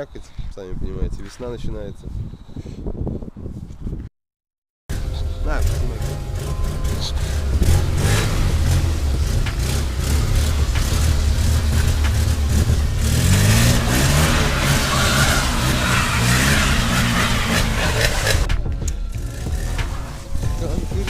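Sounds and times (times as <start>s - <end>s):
car engine revving and accelerating: 4.9s - 21.0s
road and rushing noise: 4.9s - 21.0s.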